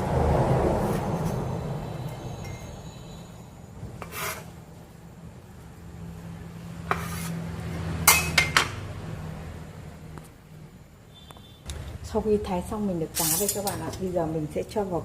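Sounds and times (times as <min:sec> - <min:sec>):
short scrape: 0:04.0 - 0:04.6, 0:06.9 - 0:07.4
utensils and dishes clinking: 0:13.2 - 0:14.1.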